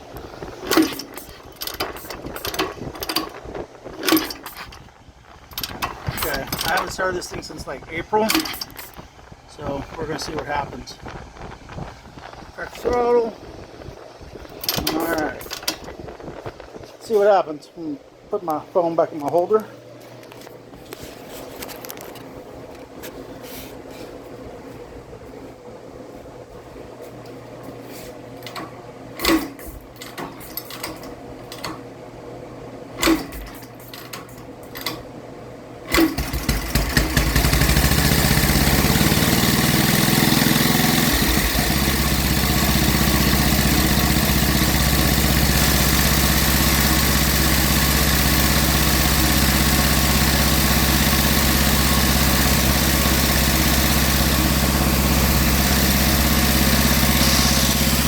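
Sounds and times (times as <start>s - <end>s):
scooter kick-start knocks: 0.6s - 3.4s, 33.0s - 35.0s, 35.9s - 43.2s
scooter engine idling: 36.2s - 58.0s.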